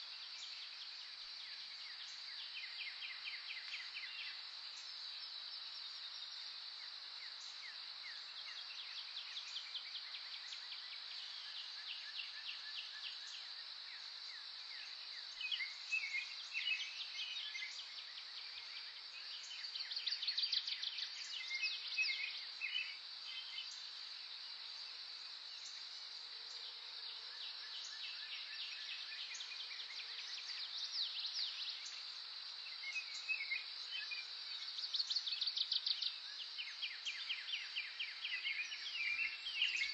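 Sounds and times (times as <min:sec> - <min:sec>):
insect drone: 0:00.0 - 0:39.9
songbirds chirping and trilling: 0:00.0 - 0:39.9.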